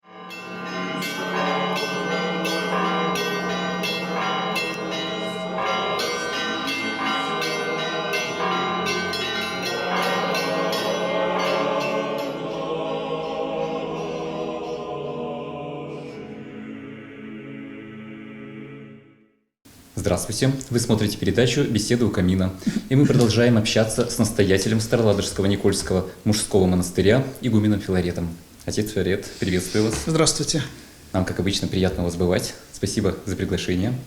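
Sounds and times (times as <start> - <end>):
church bells ringing: 0.0 - 14.9.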